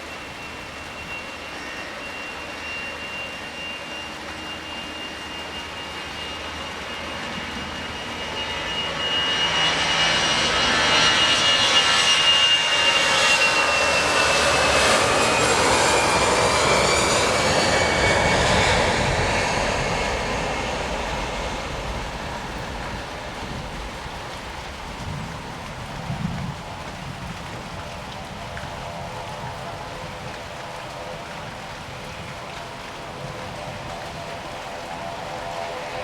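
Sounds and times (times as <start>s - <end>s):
high engine whine falling: 0.0s - 26.6s
jet engines passing by: 0.0s - 36.0s.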